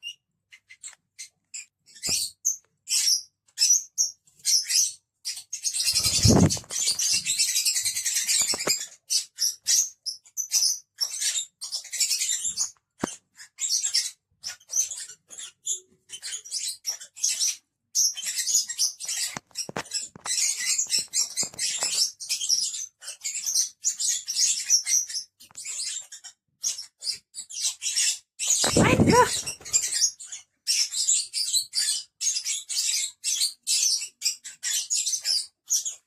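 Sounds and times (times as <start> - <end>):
lovebirds chirping and chattering: 0.0 - 36.0.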